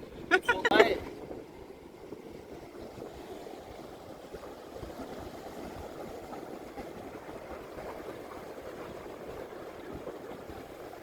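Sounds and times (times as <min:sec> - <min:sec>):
sea water washing on shore: 0:00.0 - 0:11.0.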